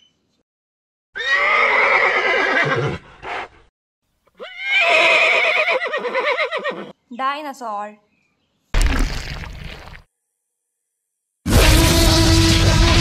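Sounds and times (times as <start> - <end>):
horse whinnying: 1.2 - 3.4, 4.4 - 6.9.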